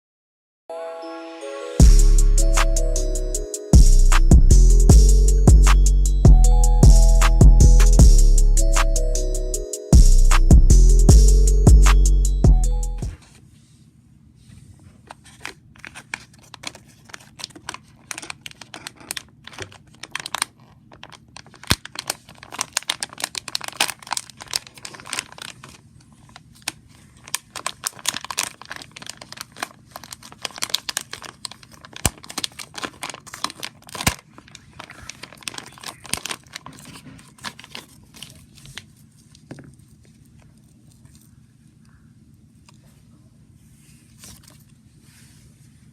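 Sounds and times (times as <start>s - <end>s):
wrapping paper tearing and rustling: 15.1s - 41.3s.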